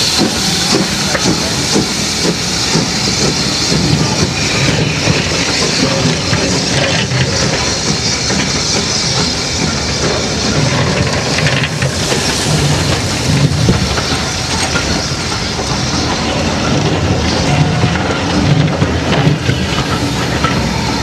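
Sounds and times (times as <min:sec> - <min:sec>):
train wheels running on rails: 0:00.0 - 0:21.0
wheels clicking over rail joints: 0:03.2 - 0:21.0.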